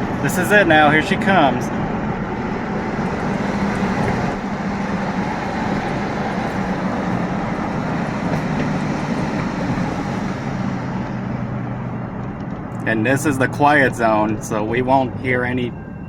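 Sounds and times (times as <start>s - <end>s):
diesel locomotive engine drone: 0.0s - 16.0s.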